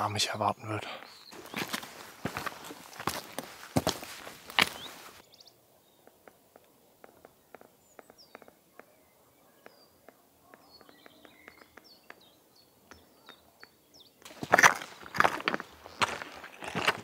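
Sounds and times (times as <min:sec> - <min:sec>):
faint bird chirps: 0:04.7 - 0:06.2, 0:06.8 - 0:14.2.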